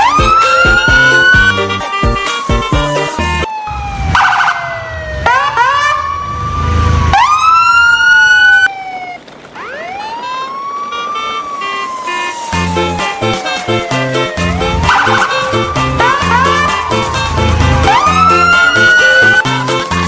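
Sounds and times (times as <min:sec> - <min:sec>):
siren wailing: 0:00.0 - 0:20.0
second siren tone sweeping up: 0:03.4 - 0:08.9, 0:11.3 - 0:20.0
low rumble: 0:14.3 - 0:19.7.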